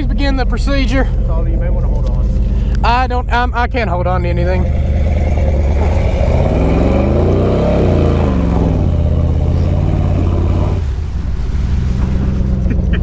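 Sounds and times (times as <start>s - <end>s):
pickup truck engine revving: 0.0s - 13.0s.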